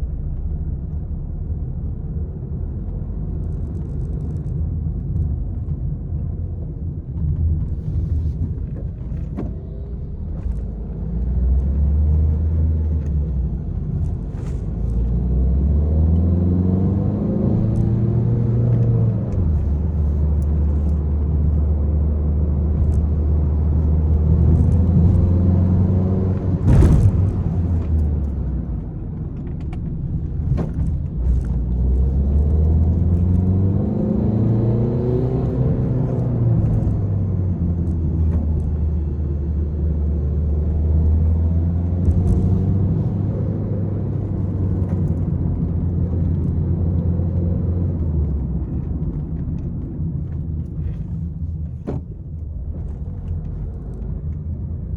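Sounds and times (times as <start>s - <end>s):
car engine accelerating: 0.0s - 54.9s
road rumble: 0.0s - 54.9s
sharp thump: 26.2s - 28.5s.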